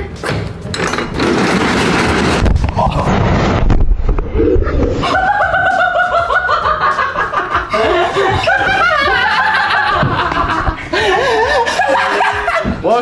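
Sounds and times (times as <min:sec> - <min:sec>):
people laughing loudly: 0:05.0 - 0:13.0.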